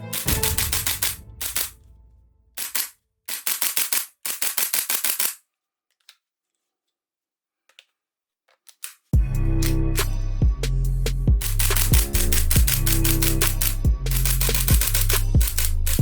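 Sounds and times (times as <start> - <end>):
music: 0.0 - 2.2, 9.2 - 16.0
toy gun clicking shots: 0.1 - 1.8, 2.6 - 5.4, 11.4 - 16.0.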